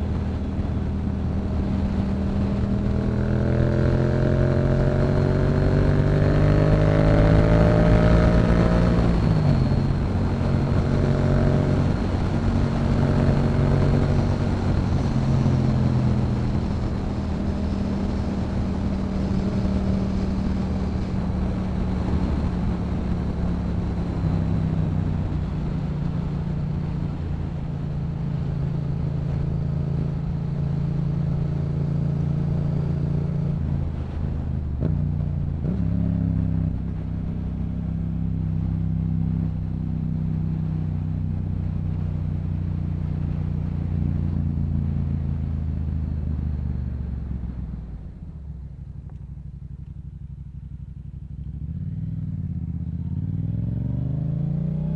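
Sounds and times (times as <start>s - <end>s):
wind noise: 0.0s - 37.8s
motorcycle engine revving: 0.0s - 54.9s.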